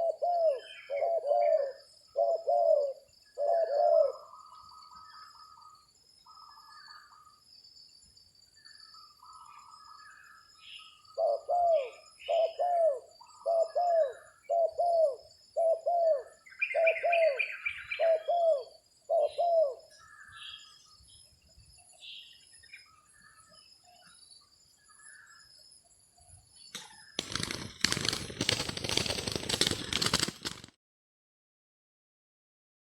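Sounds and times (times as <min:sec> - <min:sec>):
dove cooing: 0:00.0 - 0:05.8, 0:11.0 - 0:20.2
small birds chirping: 0:00.0 - 0:30.3
loud rustling crackling noise: 0:26.8 - 0:30.8.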